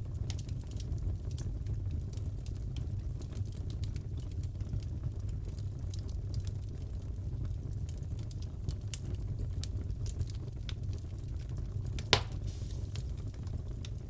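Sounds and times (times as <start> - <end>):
fire crackling: 0.0 - 14.0
fire popping: 7.5 - 14.0.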